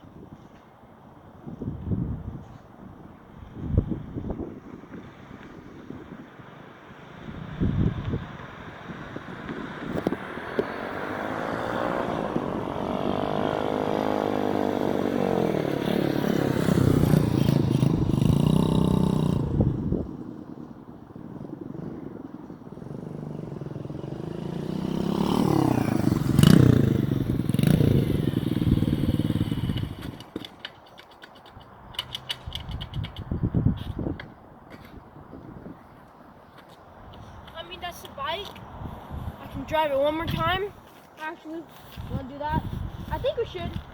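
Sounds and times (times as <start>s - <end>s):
pit bike engine running: 11.5s - 30.4s.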